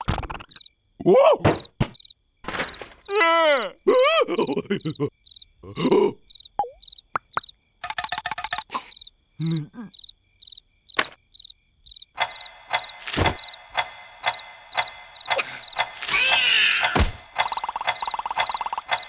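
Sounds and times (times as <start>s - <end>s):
crickets chirping: 0.4s - 19.0s
click and knock effects: 1.4s - 3.0s, 12.2s - 19.0s
squeaky cartoon voices: 3.0s - 6.5s.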